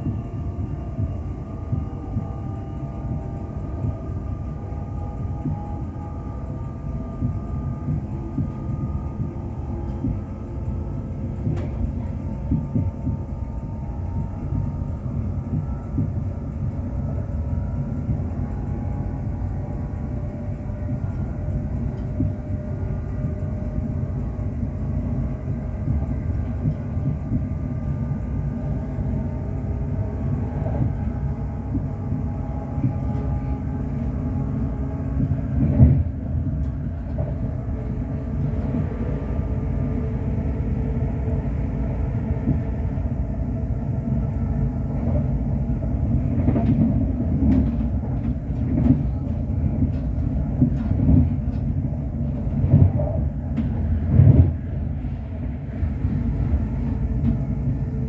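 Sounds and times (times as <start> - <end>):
train wheels rumbling on track: 0.0 - 58.0.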